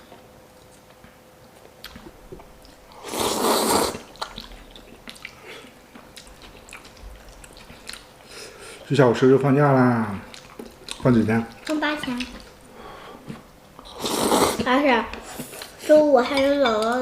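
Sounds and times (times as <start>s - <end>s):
faint chewing: 0.1s - 9.5s, 10.1s - 16.0s.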